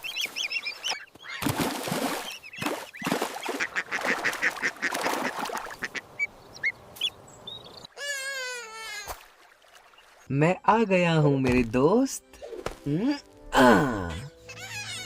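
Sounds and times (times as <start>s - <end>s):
ducks quacking: 3.0s - 7.1s.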